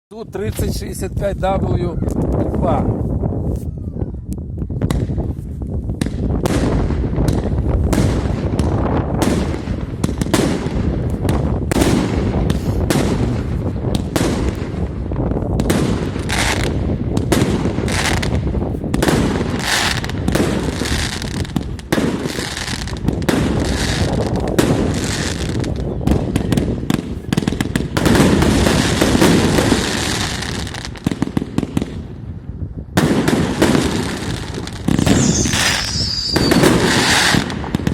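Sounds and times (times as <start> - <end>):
fireworks launch thumps and bursts: 4.8 - 5.2, 6.0 - 14.8, 33.0 - 37.9.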